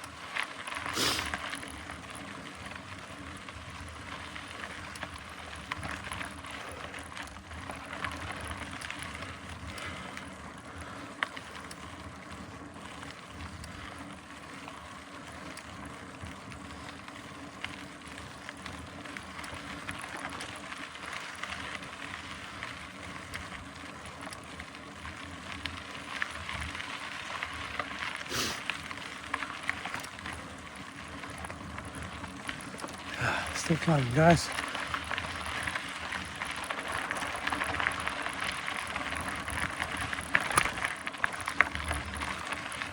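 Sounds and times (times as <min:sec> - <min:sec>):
bike drivetrain running: 0:00.0 - 0:42.9
bike tyre noise on trail: 0:00.0 - 0:42.9.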